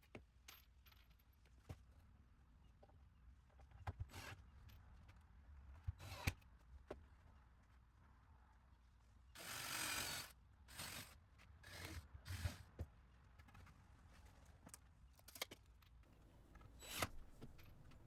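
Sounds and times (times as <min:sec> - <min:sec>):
screws rasping into wood: 0:16.4 - 0:18.0.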